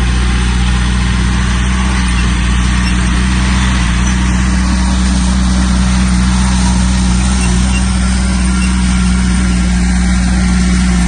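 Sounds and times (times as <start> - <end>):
bulldozer diesel engine droning: 0.0 - 11.0.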